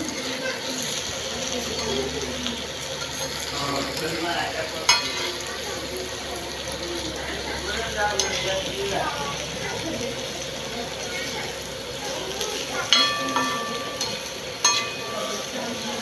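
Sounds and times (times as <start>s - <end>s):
potatoes sizzling in oil: 0.0s - 16.0s
metal spatula scraping pan: 4.8s - 5.5s
spatula knocking on pan: 4.9s - 5.3s, 12.8s - 15.5s.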